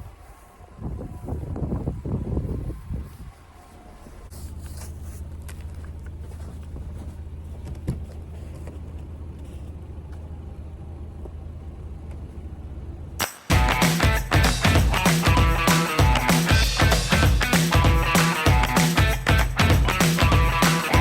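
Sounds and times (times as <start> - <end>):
car engine running: 0.3 - 21.0
loud guitar music: 13.2 - 21.0.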